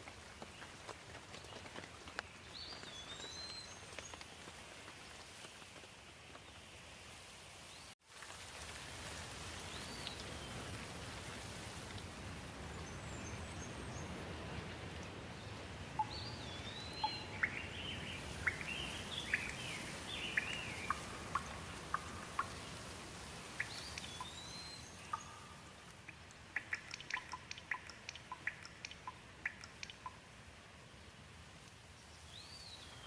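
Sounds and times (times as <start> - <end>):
steady rain: 0.0 - 33.0
birds calling and chirping: 12.7 - 22.9, 23.5 - 30.2.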